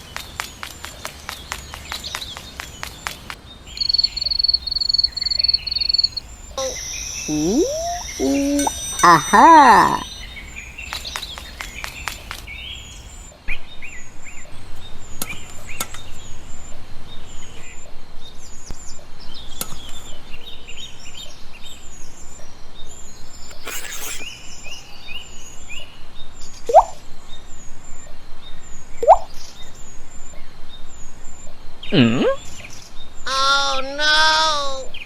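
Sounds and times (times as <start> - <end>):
birds chirping: 3.4 - 13.3
quick even pulsing: 3.8 - 6.2
short rising calls: 3.8 - 10.8.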